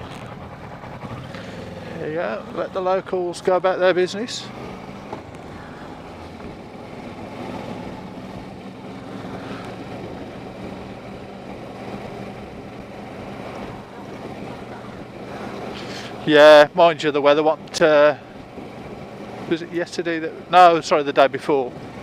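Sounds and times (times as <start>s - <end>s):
motorcycle engine running: 0.0s - 22.0s
wind buffeting microphone: 4.5s - 16.6s.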